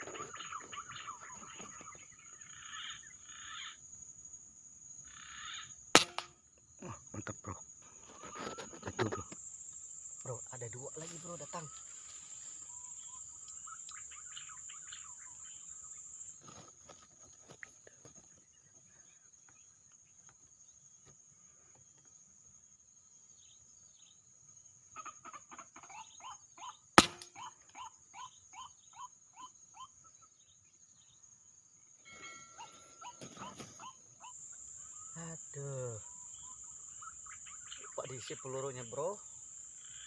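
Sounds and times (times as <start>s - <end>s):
high insect buzz: 4.9s - 16.7s
bird short repeated calls: 5.1s - 5.7s, 32.1s - 39.2s
air rifle shot: 6.0s - 6.3s, 27.0s - 27.3s.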